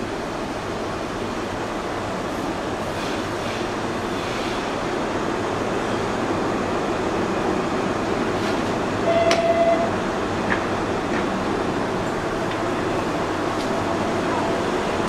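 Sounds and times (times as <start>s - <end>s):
electric train rumbling: 0.0s - 15.0s
train doors opening knock: 9.1s - 11.4s.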